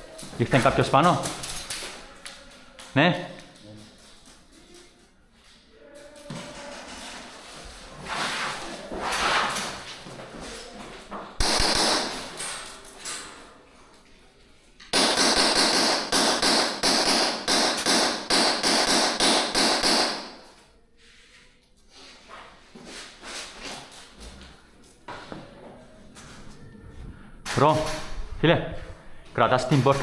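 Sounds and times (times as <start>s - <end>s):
airsoft gunfire: 11.4s - 12.4s, 14.9s - 20.4s.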